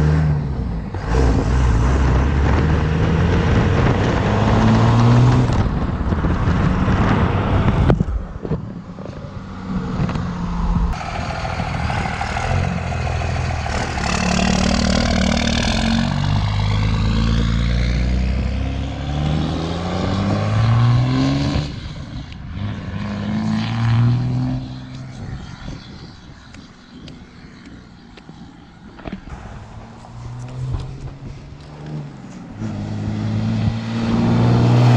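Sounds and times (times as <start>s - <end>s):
loud diesel engine revving: 0.0s - 5.5s, 9.6s - 21.8s, 29.4s - 34.9s.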